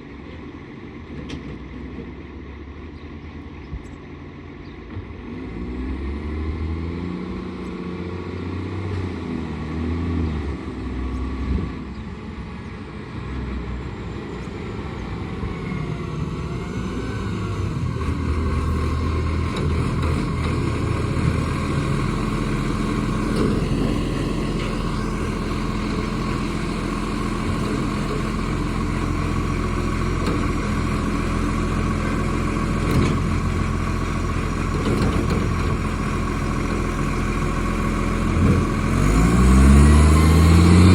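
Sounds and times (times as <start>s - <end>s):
truck engine with exhaust leak: 10.8s - 40.9s.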